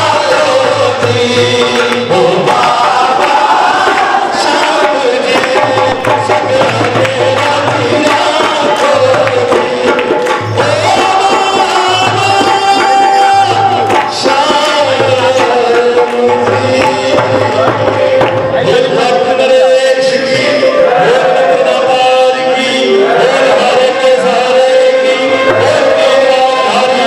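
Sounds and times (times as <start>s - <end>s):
hand drum beat: 0.0s - 19.1s
devotional melody: 0.0s - 27.0s.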